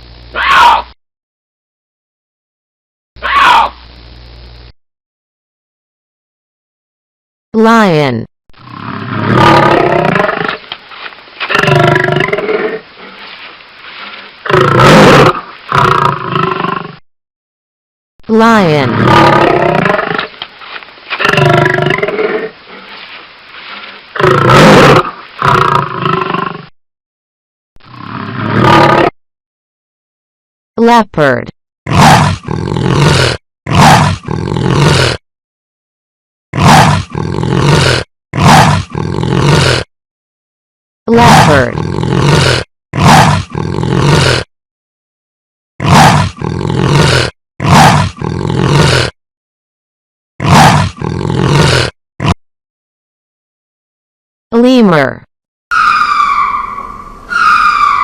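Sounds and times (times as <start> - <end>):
lion roaring: 8.6 - 10.7, 11.4 - 17.0, 18.8 - 20.3, 21.2 - 23.0, 24.1 - 26.7, 27.9 - 29.1, 31.9 - 35.2, 36.5 - 39.9, 41.2 - 44.5, 45.8 - 49.2, 50.4 - 52.4
lion low grunting: 14.4 - 17.0, 31.9 - 35.2, 36.6 - 39.9, 41.3 - 44.5, 45.8 - 49.2, 50.4 - 52.4.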